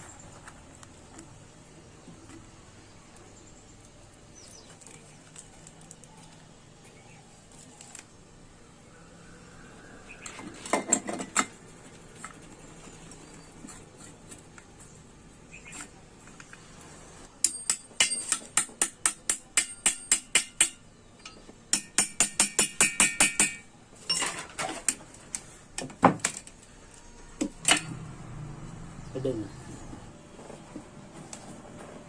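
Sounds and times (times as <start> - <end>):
hammer tapping on metal: 17.4 - 23.7.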